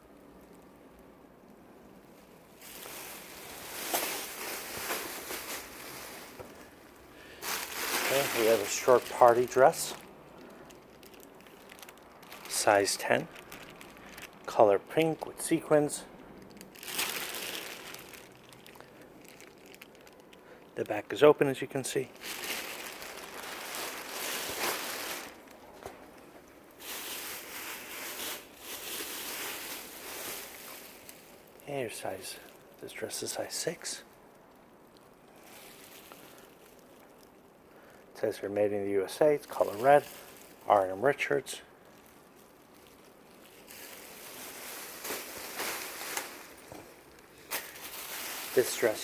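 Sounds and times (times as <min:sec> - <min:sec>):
dress fabric rustling: 0:02.0 - 0:20.4, 0:22.1 - 0:31.6, 0:35.3 - 0:37.3, 0:39.4 - 0:49.0
cloth rustling and swishing: 0:02.6 - 0:06.7, 0:07.4 - 0:09.9, 0:22.4 - 0:25.5, 0:43.7 - 0:49.0.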